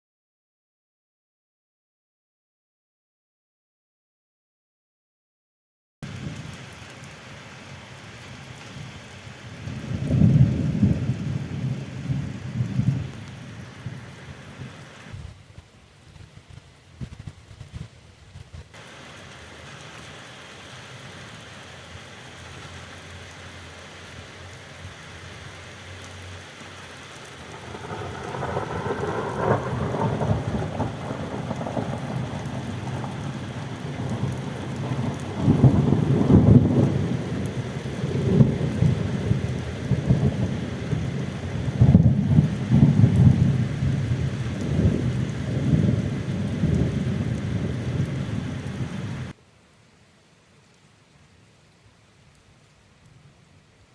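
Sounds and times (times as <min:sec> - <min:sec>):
rain hiss: 0:06.0 - 0:53.9
thunder peal and rumbles: 0:09.6 - 0:14.8, 0:27.4 - 0:49.3.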